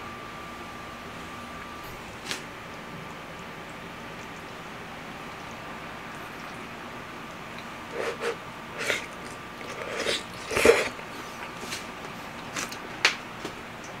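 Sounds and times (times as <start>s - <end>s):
chewing and mouth sounds: 7.5s - 13.2s.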